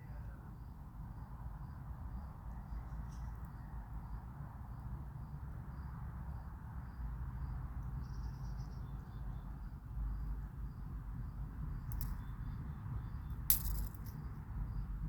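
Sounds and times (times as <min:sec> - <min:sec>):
insect chirping: 0:08.0 - 0:15.0.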